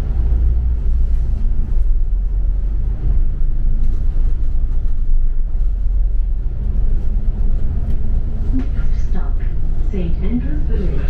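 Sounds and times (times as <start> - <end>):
bus rumbling inside cabin: 0.0 - 11.0.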